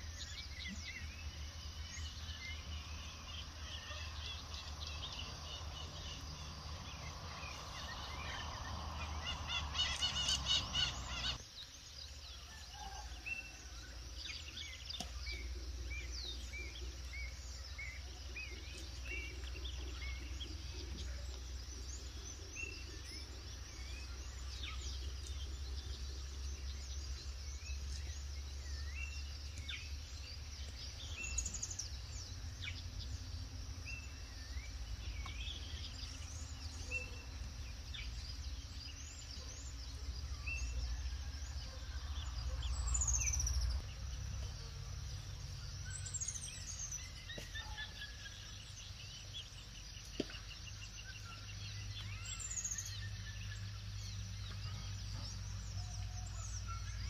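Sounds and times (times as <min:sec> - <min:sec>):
birds chirping and whistling: 0:00.0 - 0:11.4, 0:45.6 - 0:57.0
bird trill: 0:09.0 - 0:11.4.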